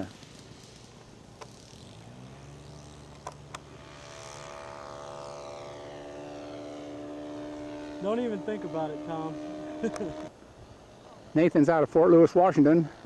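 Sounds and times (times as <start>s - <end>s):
model plane engine running: 0.0s - 10.3s.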